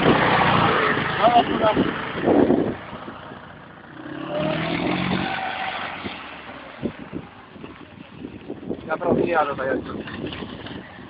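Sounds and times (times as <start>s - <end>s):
vehicle engine running: 0.0s - 5.1s.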